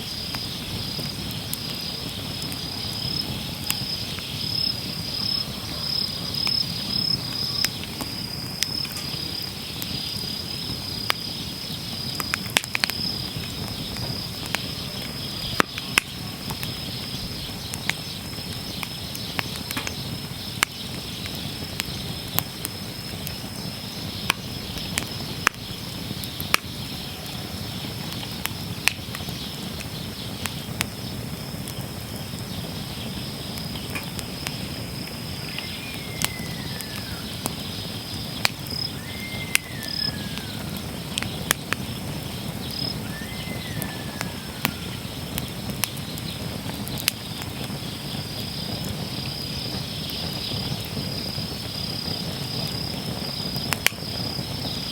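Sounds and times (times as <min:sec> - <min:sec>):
insect trill: 0:00.0 - 0:54.9
wood fire crackling and popping: 0:00.0 - 0:54.9
short falling whistles: 0:35.5 - 0:37.3, 0:38.9 - 0:40.8, 0:42.9 - 0:45.0.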